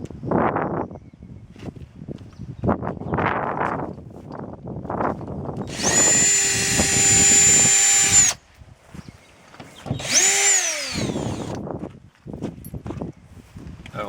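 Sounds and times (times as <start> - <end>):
power drill whining: 5.6 - 8.4, 9.9 - 11.6.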